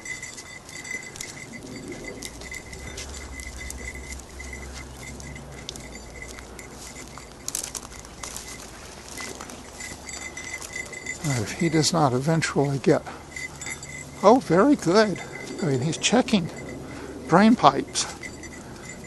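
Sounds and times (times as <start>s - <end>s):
low rumble: 0.0s - 11.6s
light clicks and jingles: 0.0s - 19.0s.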